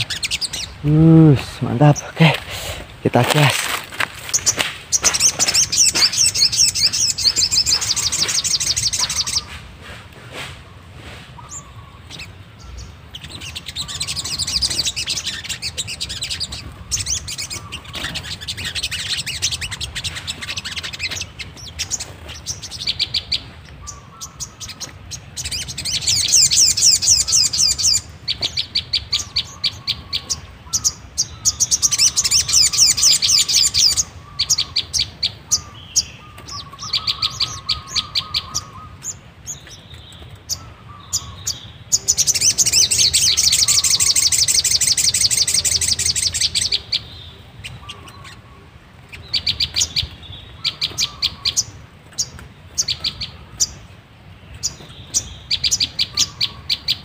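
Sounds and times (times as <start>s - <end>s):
sharp bird chips: 0.0s - 47.0s
birds chattering trills: 0.0s - 57.0s.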